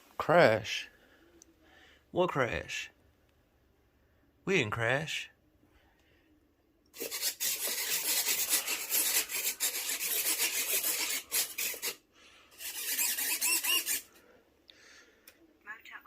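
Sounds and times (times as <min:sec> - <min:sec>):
hand sanding strokes: 0:07.0 - 0:14.1.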